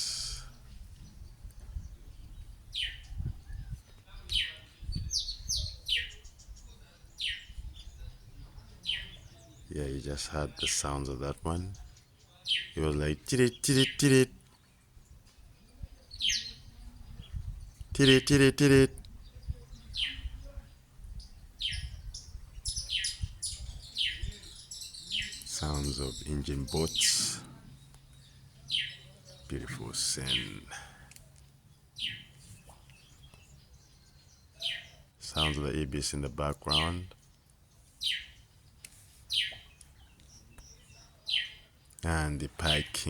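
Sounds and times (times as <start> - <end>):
small bird calling: 0.0 - 9.7, 15.4 - 43.0
songbird high call notes: 16.0 - 16.8, 21.2 - 30.8, 32.0 - 35.8.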